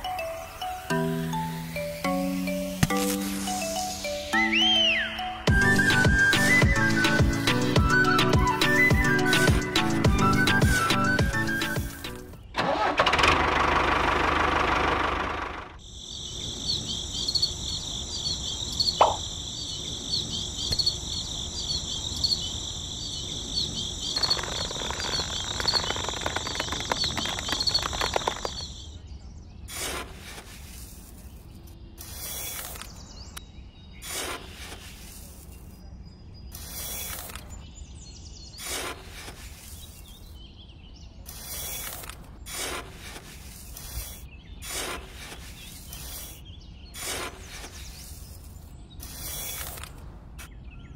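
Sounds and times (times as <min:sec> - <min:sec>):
insect chirping: 0:15.8 - 0:29.0
rustling and scraping handling: 0:29.7 - 0:33.0, 0:34.0 - 0:35.8, 0:38.6 - 0:40.4, 0:41.3 - 0:50.2.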